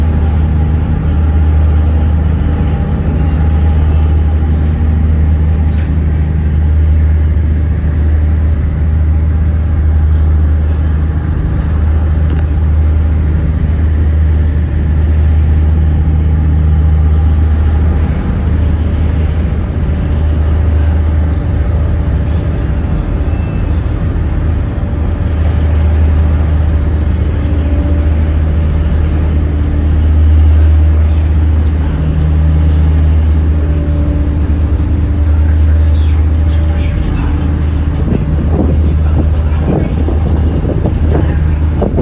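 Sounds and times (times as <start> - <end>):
motorboat engine running: 0.0 - 42.0.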